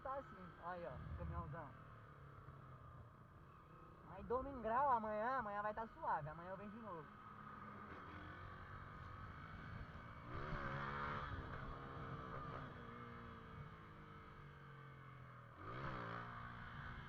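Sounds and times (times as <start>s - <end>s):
motorcycle engine revving: 7.0s - 17.0s.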